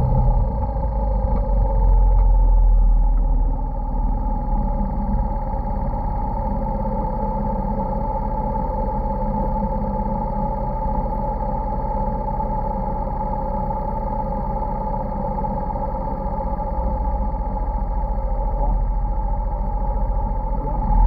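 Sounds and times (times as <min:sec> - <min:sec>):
motorcycle engine running: 0:00.0 - 0:03.4.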